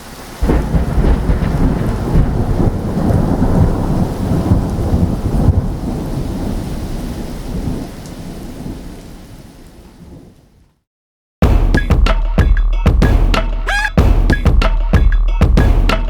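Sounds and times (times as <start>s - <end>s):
rain: 0.0s - 10.8s
rolling thunder: 0.4s - 9.3s.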